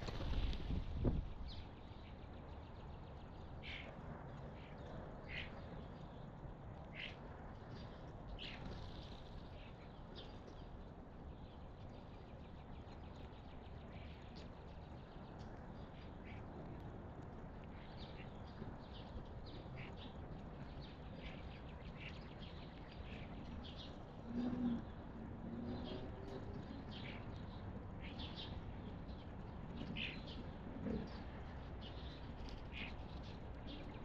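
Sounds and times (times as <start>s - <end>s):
wild birds calling: 3.4s - 6.1s, 6.7s - 10.3s, 17.6s - 34.0s.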